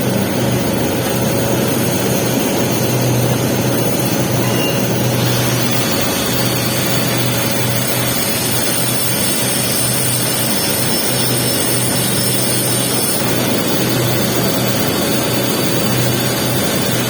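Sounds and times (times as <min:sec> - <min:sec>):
low hum: 0:00.0 - 0:12.1
welding arc crackling hiss: 0:00.0 - 0:17.0.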